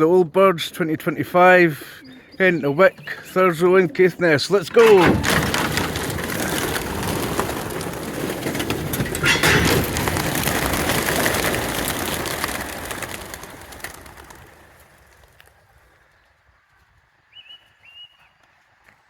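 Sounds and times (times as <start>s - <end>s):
pigeon wingbeats clattering: 4.5s - 15.7s.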